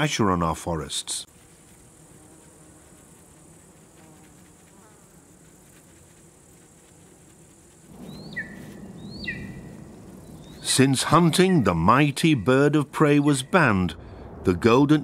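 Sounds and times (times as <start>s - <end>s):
insects buzzing: 1.2s - 13.8s
bird chirping: 8.0s - 13.8s.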